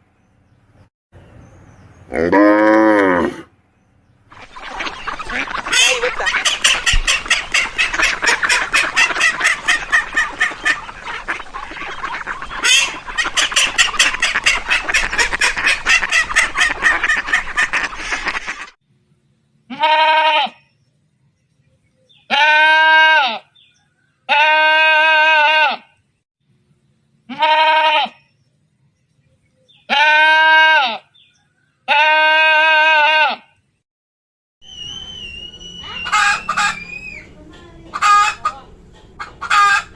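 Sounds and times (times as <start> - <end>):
farm animal bleating: 2.1 - 3.4, 19.7 - 20.7, 22.2 - 23.5, 24.3 - 26.0, 27.3 - 28.3, 29.8 - 31.2, 31.9 - 33.6
farm fowl honking: 4.3 - 18.7, 35.6 - 39.9.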